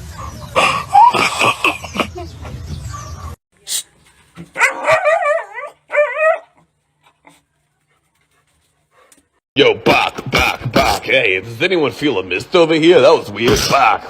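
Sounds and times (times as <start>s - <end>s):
dog whining and howling: 4.6s - 6.6s.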